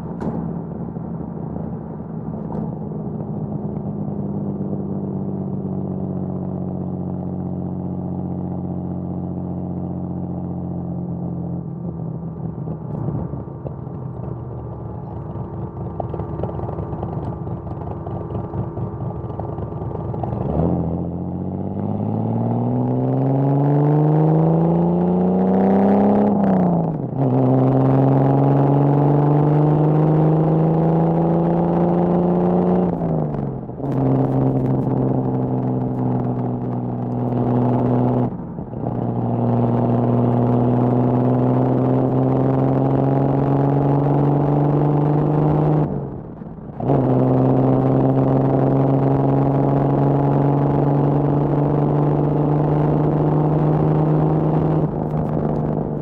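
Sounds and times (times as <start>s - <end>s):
car engine revving while driving: 20.1s - 56.0s.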